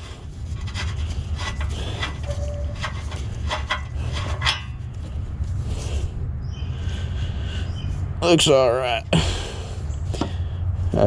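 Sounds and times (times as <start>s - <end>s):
metal clinks and scraping: 0.0s - 5.1s
steady low rumble: 0.0s - 11.0s.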